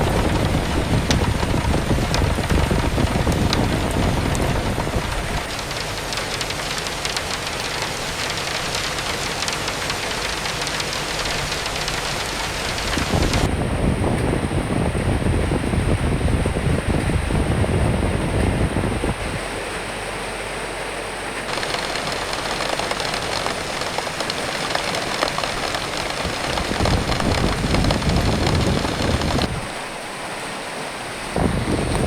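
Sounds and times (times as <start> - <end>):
rain falling: 0.0 - 13.5, 21.5 - 32.0
gusting wind: 0.0 - 19.4, 21.5 - 30.1, 31.2 - 32.0.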